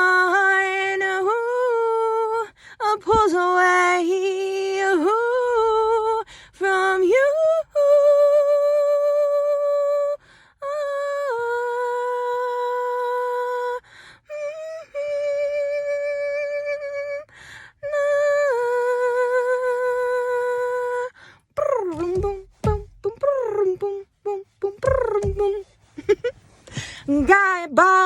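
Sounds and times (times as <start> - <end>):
woman singing wordless notes: 17.9 - 25.7.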